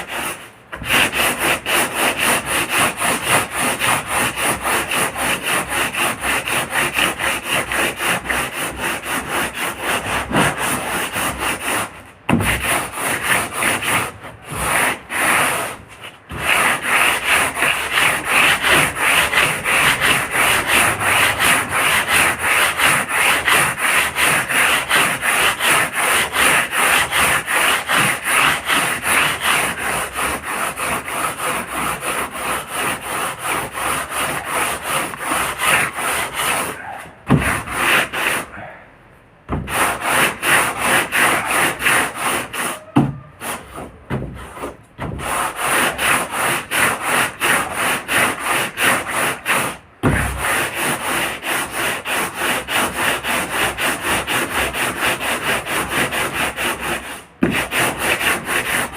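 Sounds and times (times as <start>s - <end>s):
hand sanding boat hull: 0.0s - 38.8s, 39.4s - 58.9s.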